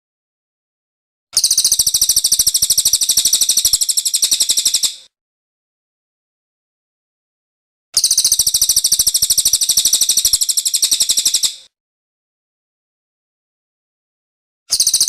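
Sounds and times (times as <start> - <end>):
songbird high-pitched trill: 1.4 - 5.1, 8.0 - 11.7, 14.7 - 15.0.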